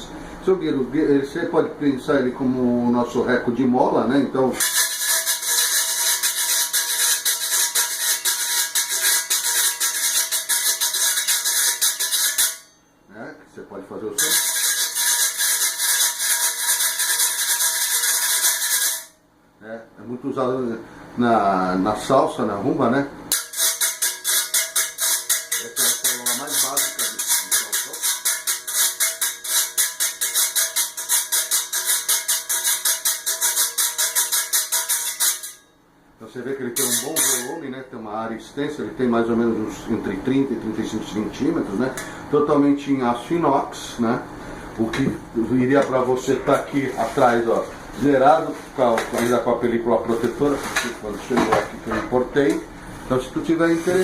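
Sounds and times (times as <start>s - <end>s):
metal guiro scraped: 4.6s - 12.7s, 14.2s - 19.1s, 23.3s - 35.7s, 36.8s - 37.6s.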